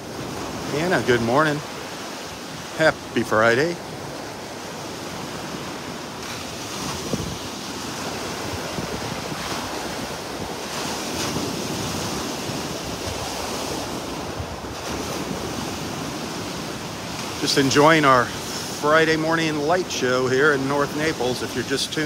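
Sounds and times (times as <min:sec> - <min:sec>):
wind buffeting microphone: 0:00.0 - 0:17.5.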